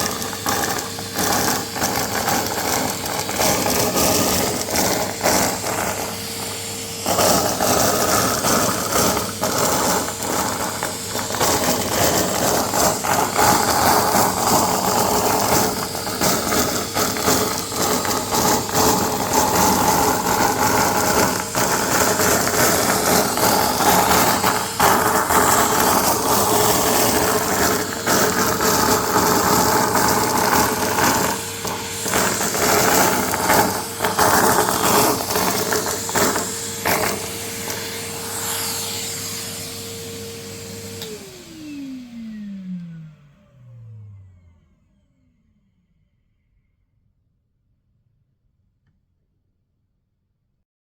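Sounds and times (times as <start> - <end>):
confetti rattling through hose: 0.0 - 6.2, 7.0 - 37.8
vacuum cleaner motor whine: 0.0 - 46.6.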